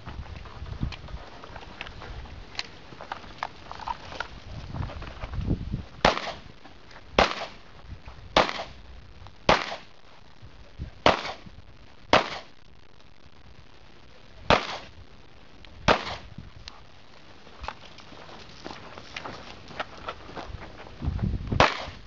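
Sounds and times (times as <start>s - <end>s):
pistol shots: 6.0s - 6.5s, 7.2s - 7.6s, 8.4s - 8.8s, 9.5s - 9.9s, 11.0s - 11.5s, 12.1s - 12.6s, 14.5s - 14.9s, 15.9s - 16.3s, 21.6s - 22.0s.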